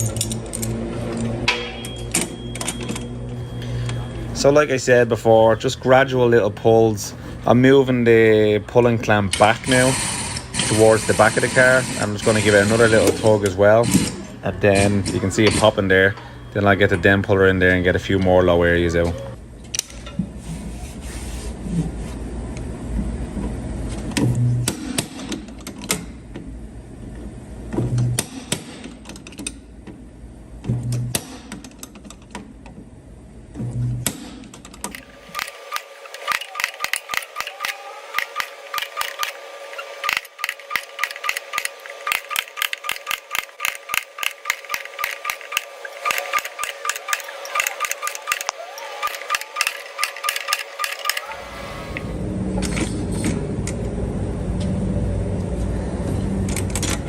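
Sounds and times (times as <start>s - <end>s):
steady hum: 0.0s - 24.9s
low shop rumble: 0.0s - 57.0s
dent puller metallic clicks: 34.8s - 39.4s, 40.0s - 51.3s.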